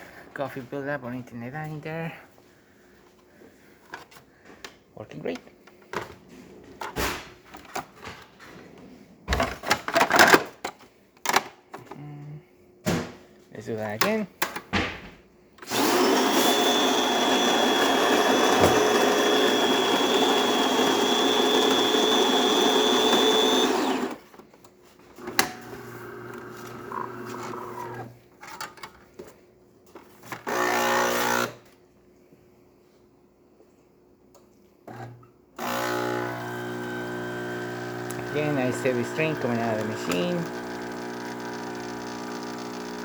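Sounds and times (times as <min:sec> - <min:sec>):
brew unit clicking and whirring: 0:15.6 - 0:24.2, 0:35.6 - 0:43.0
coffee grinder grinding beans: 0:15.6 - 0:24.2, 0:25.5 - 0:28.1, 0:35.6 - 0:43.0
espresso pump humming: 0:15.7 - 0:24.2, 0:25.6 - 0:28.1, 0:35.7 - 0:43.0.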